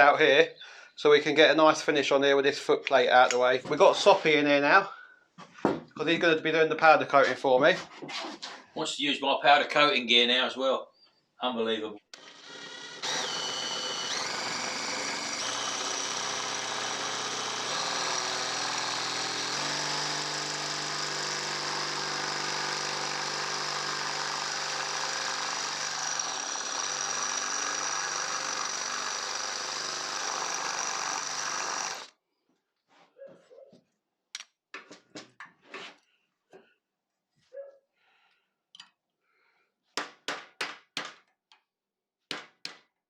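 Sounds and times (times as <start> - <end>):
electric drill running: 12.2 - 32.1.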